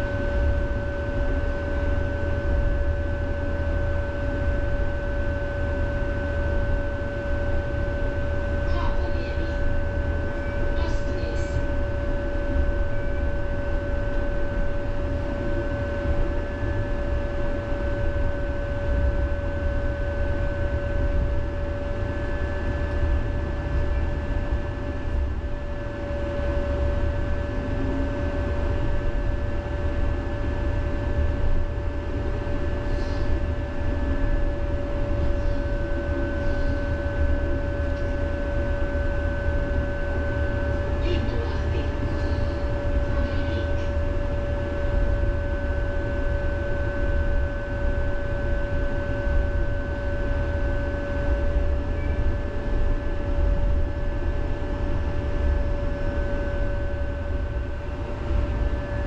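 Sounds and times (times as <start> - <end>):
tram rumble: 0.0 - 46.4, 53.4 - 59.0
two-note electrical hum: 0.0 - 59.0.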